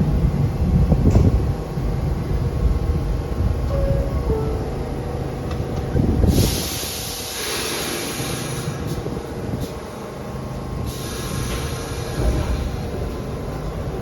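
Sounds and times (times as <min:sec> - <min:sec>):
subway train rumble: 0:00.0 - 0:14.0
loud hiss of released air: 0:06.2 - 0:09.8, 0:10.8 - 0:13.2
short puffs of air: 0:06.2 - 0:09.8, 0:10.8 - 0:12.8.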